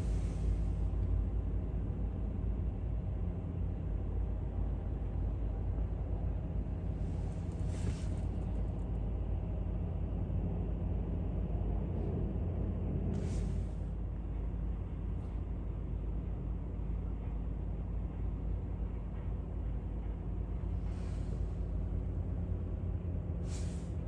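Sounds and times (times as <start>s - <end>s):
brief hiss: 23.4s - 24.0s.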